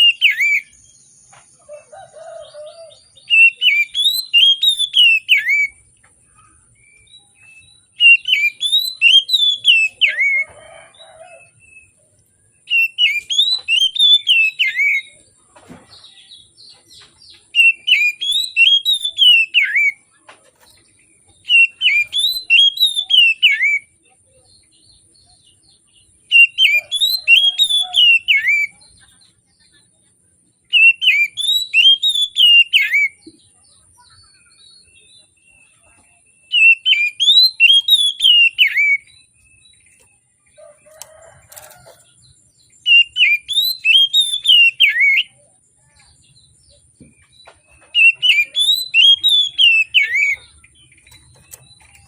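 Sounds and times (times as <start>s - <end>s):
bird singing whistled notes: 0.0s - 1.4s, 2.4s - 5.9s, 6.8s - 12.0s, 12.6s - 15.3s, 17.5s - 20.0s, 21.3s - 24.0s, 26.3s - 28.9s, 30.7s - 33.3s, 34.0s - 40.3s, 42.6s - 52.0s.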